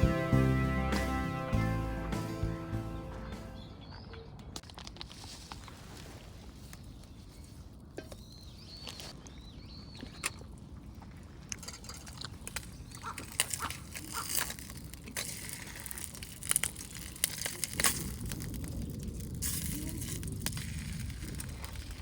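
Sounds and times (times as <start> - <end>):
campfire crackling and popping: 11.6 - 22.0.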